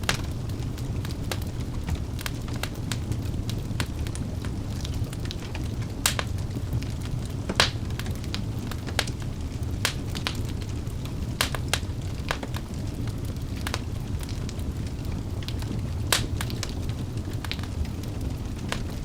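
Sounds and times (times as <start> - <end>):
burning logs crackling and popping: 0.0 - 19.0
fire flames rumbling: 0.0 - 19.0.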